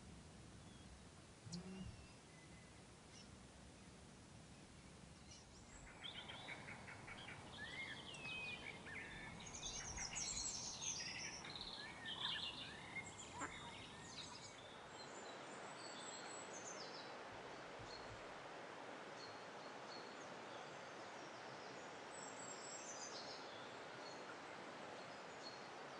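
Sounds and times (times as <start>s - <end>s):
birds singing: 5.2s - 17.2s.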